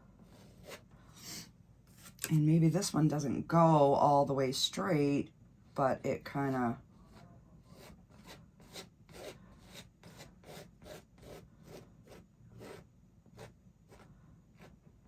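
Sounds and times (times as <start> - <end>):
paintbrush scratching on canvas: 0.2 - 1.0, 7.0 - 15.0.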